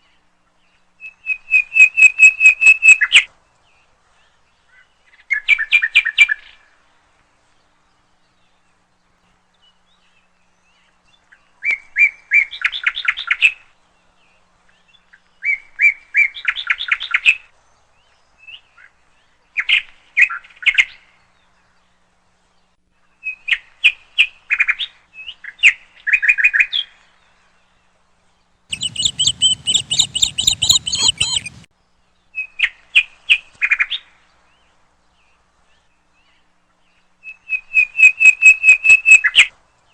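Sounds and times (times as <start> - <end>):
bird twittering chirps: 28.7 - 31.7.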